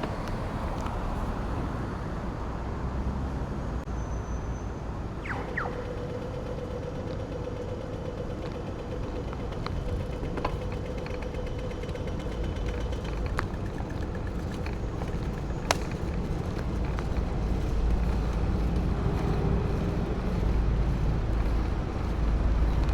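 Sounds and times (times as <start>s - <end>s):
bicycle creaks and clicks: 0.0s - 2.5s, 5.2s - 22.9s
wind rumble on microphone: 9.3s - 22.9s.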